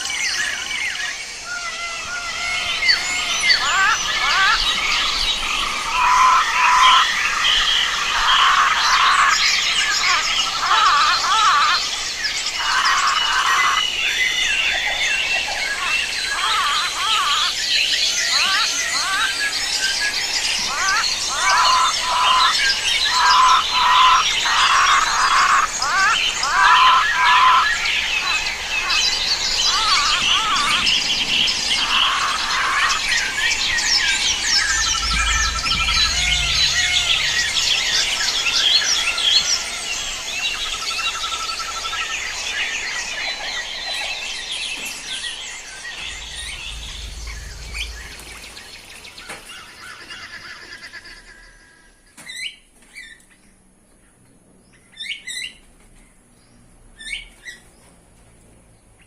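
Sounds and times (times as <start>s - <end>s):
small birds chirping chorus: 0.0s - 59.0s
repeated lower bird notes: 33.5s - 40.1s, 45.7s - 49.7s.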